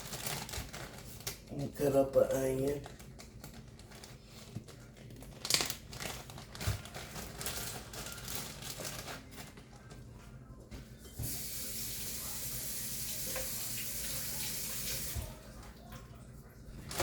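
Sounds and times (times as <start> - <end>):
light crinkling: 0.0 - 10.7
tap water running into sink: 11.2 - 15.4.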